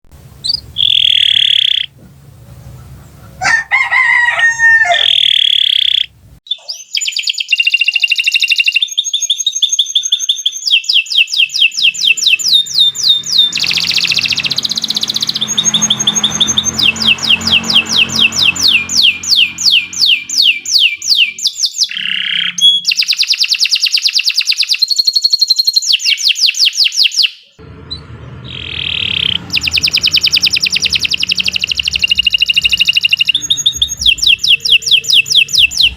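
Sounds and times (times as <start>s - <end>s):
canary singing trills: 0.4s - 3.5s, 5.0s - 23.7s, 24.6s - 35.9s
lower bending bird call: 0.4s - 3.6s, 11.4s - 22.6s, 27.6s - 35.9s.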